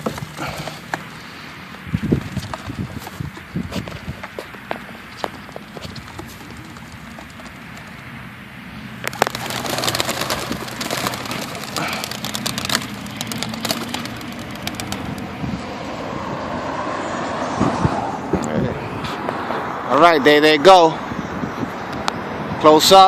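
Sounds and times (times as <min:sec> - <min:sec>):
pigeon wings flapping: 0:05.2 - 0:08.1, 0:09.1 - 0:15.4.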